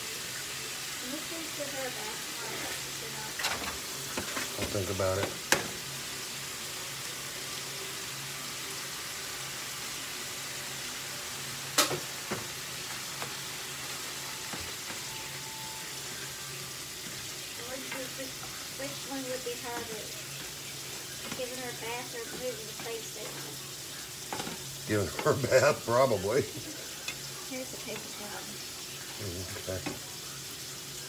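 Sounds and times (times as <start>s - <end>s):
food sizzling in a skillet: 0.0s - 31.0s
spatula stirring pan: 0.6s - 5.8s, 12.0s - 31.0s.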